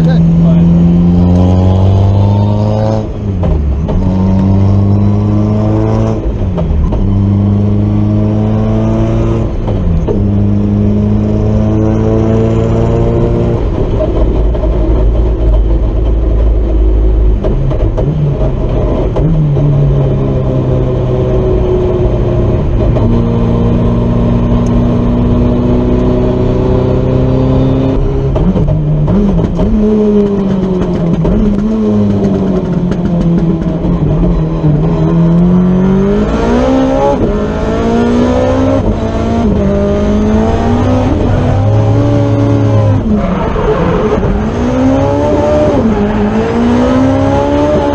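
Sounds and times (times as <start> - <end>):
car engine revving at high revs: 0.0 - 47.9.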